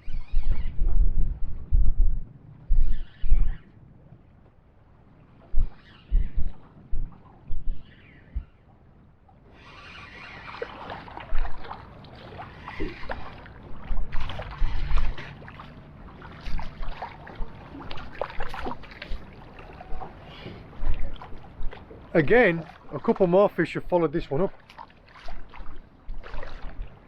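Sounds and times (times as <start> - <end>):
water splashing around boat: 3.7 - 27.0.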